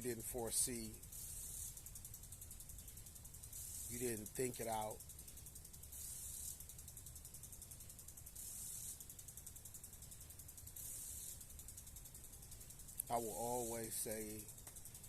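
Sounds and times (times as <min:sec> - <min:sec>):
low steady rumble: 0:00.0 - 0:15.0
short high hiss: 0:01.0 - 0:01.9, 0:03.5 - 0:04.8, 0:05.9 - 0:06.6, 0:08.3 - 0:09.1, 0:10.8 - 0:11.5.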